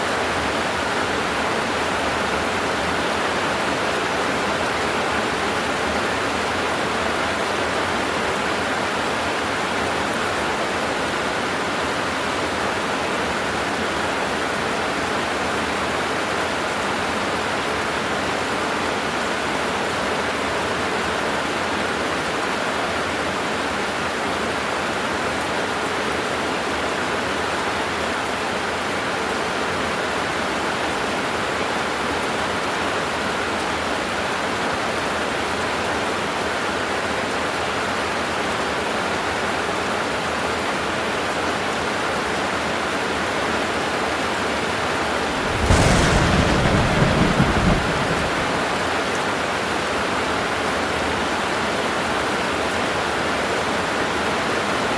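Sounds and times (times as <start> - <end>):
heavy rain: 44.2 - 52.8
thunder clap: 45.1 - 50.0.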